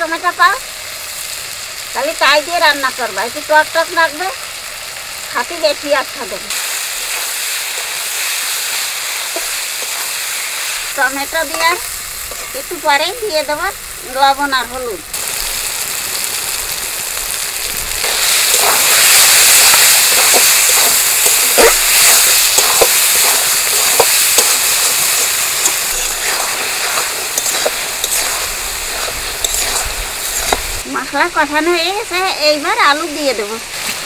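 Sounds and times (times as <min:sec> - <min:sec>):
masala sizzling in a pan: 0:00.0 - 0:34.0
metal spatula scraping a pan: 0:18.0 - 0:30.6.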